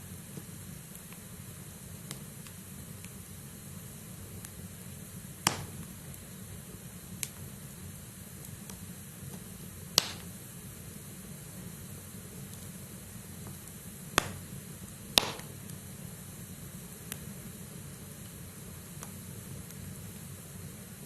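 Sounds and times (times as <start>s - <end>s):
sharp pops: 5.4s - 5.9s, 10.0s - 10.3s, 14.2s - 14.6s, 15.2s - 15.6s.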